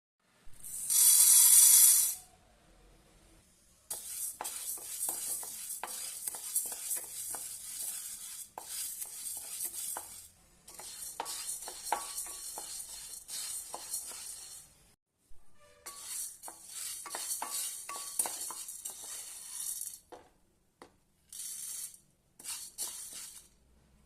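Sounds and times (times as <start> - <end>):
food sizzling in a pan: 0.7 - 2.2, 3.9 - 14.7, 15.9 - 20.0, 21.4 - 23.5.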